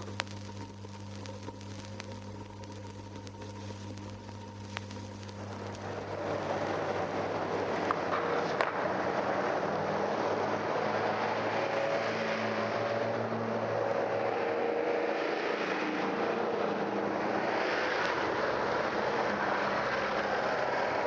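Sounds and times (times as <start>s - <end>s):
vinyl click: 0.0s - 9.6s
road traffic passing: 5.3s - 21.0s.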